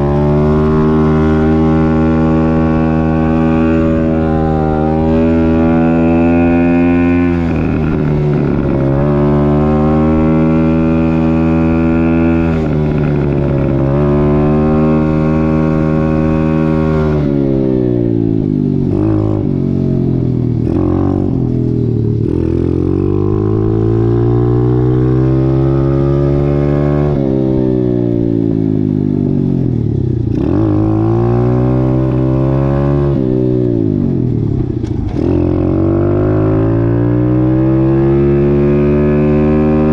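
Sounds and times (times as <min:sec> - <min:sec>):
dirt bike engine revving: 0:00.0 - 0:18.2, 0:35.1 - 0:39.9.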